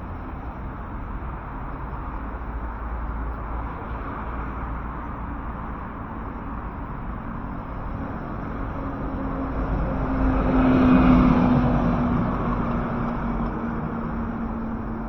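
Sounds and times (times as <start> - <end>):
road vehicle passing: 0.0 - 15.0.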